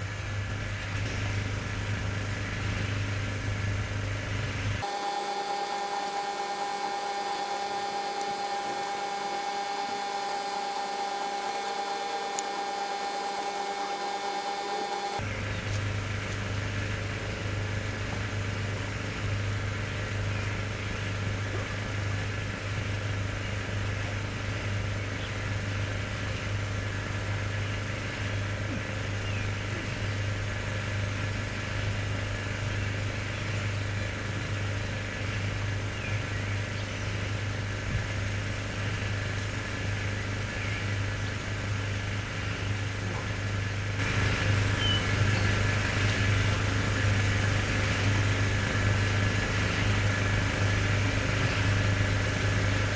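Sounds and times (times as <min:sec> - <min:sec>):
motor humming: 0:04.8 - 0:15.2.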